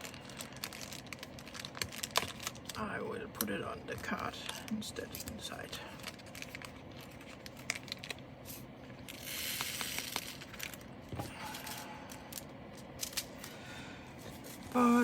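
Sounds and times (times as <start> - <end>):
plastic bag rustle: 0.0 - 2.8, 4.7 - 13.5.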